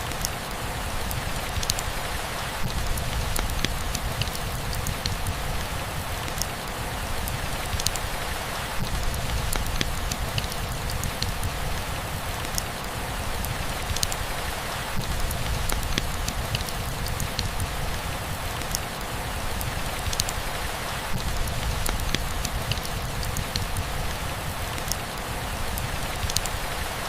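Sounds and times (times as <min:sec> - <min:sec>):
rain hissing: 0:00.0 - 0:27.0
raindrops ticking: 0:00.0 - 0:27.0.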